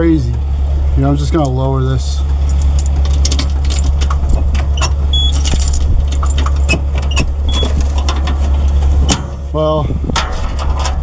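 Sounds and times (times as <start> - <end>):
diesel engine running: 0.0 - 11.0
metallic clinks and rattles: 2.4 - 8.3.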